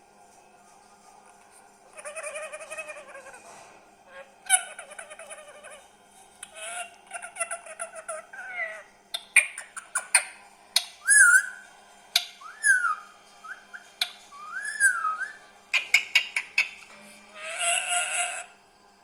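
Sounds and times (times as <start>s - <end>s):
parrot whistling: 11.0s - 11.6s, 12.4s - 16.7s
harsh parrot call: 14.4s - 18.6s.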